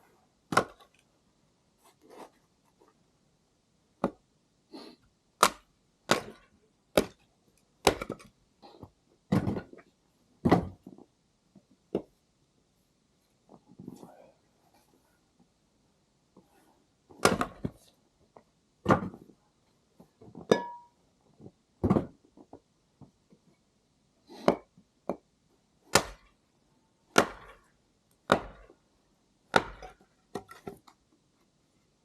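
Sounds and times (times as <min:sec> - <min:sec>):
axe chopping firewood: 0:00.5 - 0:00.8, 0:05.4 - 0:07.2, 0:07.8 - 0:08.2, 0:17.2 - 0:17.8, 0:25.9 - 0:26.3, 0:27.1 - 0:27.7, 0:28.3 - 0:28.8, 0:29.5 - 0:30.6.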